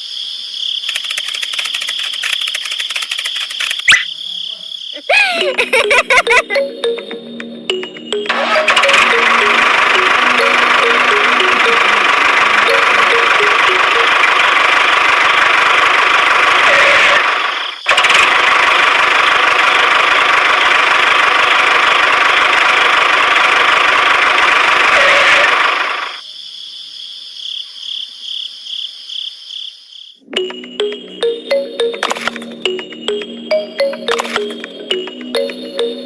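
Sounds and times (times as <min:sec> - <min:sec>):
high beeps: 0:05.6 - 0:14.4, 0:30.4 - 0:36.0.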